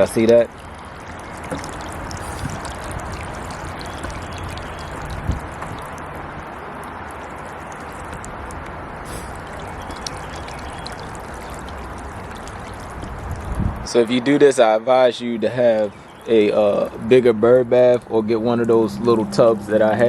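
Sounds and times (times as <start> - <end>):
fountain water splashing: 0.0 - 20.0
water spilling from bird bath: 0.0 - 20.0.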